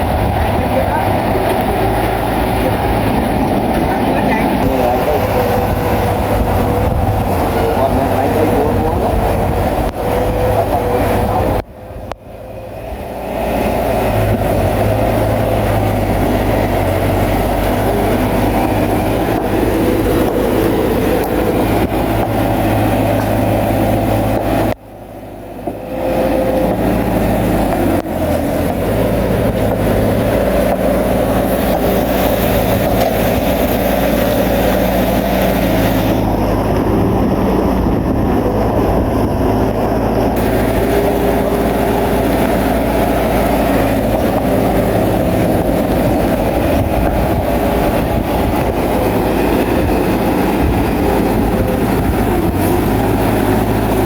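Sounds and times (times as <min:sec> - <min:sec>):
bulldozer diesel engine running: 0:00.0 - 0:54.0
steel tracks clattering: 0:40.0 - 0:54.0.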